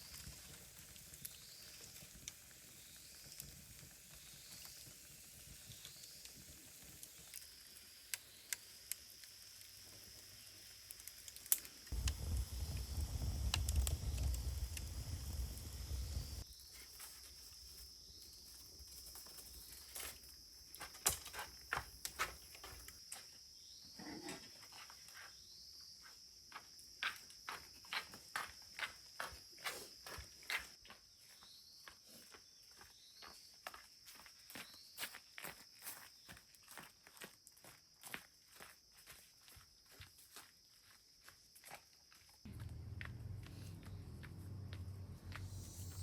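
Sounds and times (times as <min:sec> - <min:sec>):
insects chirring: 0:00.0 - 0:46.0
low rumble: 0:12.0 - 0:16.4, 0:42.5 - 0:46.0.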